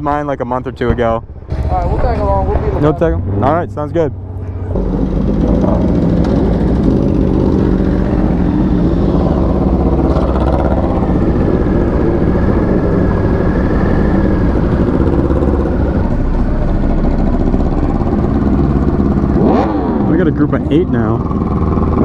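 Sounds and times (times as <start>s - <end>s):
motorcycle engine idling: 4.2s - 22.0s.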